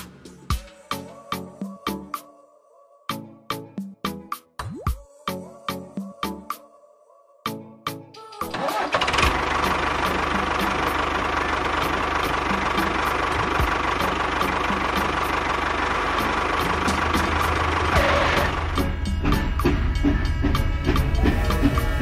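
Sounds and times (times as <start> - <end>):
music with regular beat: 0.0 - 2.2, 12.5 - 15.2, 16.2 - 22.0
engine starting and running: 8.4 - 22.0.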